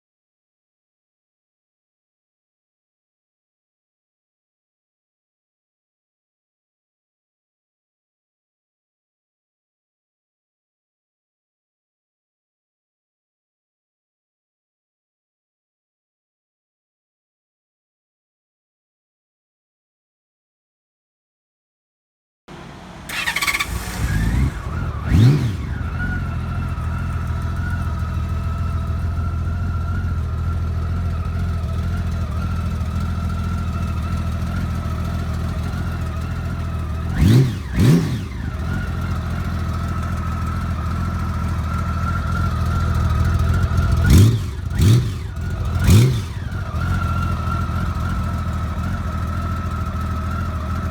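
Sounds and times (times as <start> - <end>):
motorcycle engine starting and idling: 22.5 - 50.9
motorcycle throttle blips: 22.5 - 50.9.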